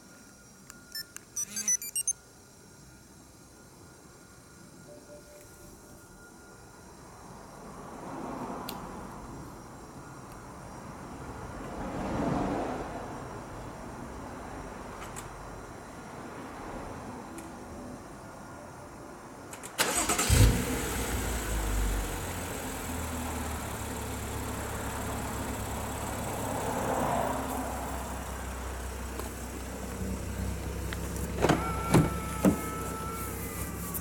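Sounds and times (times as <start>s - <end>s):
short steady tone: 0.9s - 2.2s, 31.6s - 34.0s
car engine starting and idling: 19.6s - 34.0s.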